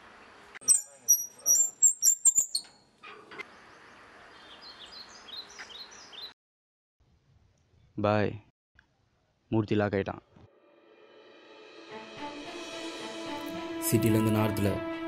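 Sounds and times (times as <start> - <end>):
sharp high clicks and shrill chirps: 0.6 - 2.8
short rising chirps: 0.6 - 2.8
birds calling: 0.6 - 6.4.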